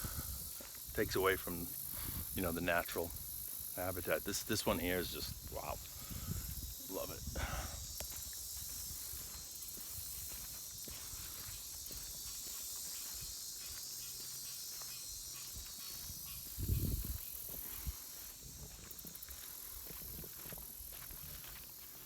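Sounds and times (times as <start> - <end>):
footsteps on a trail: 0.0 - 22.0
steady high-pitched hiss: 0.0 - 22.0.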